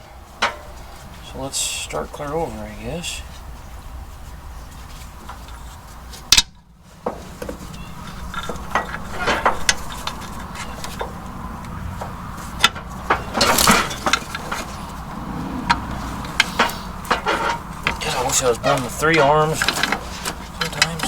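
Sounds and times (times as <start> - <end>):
steady low hum: 14.3 - 17.8.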